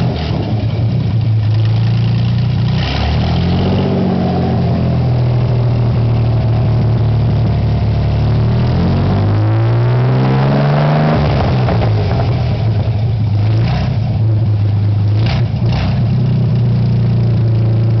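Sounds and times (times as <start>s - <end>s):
boat engine revving and idling: 0.0s - 18.0s.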